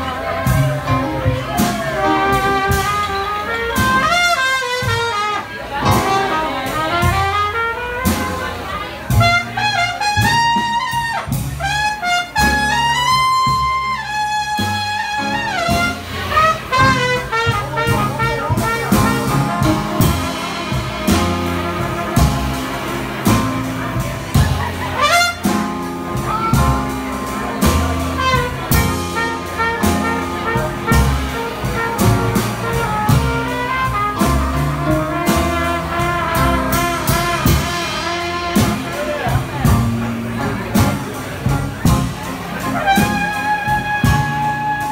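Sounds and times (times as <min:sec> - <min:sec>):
drum beat: 0:00.0 - 0:08.5, 0:09.1 - 0:44.9
bass: 0:00.0 - 0:44.9
traditional jazz band: 0:00.0 - 0:44.9
cornet playing melody: 0:01.7 - 0:39.3, 0:42.0 - 0:44.9.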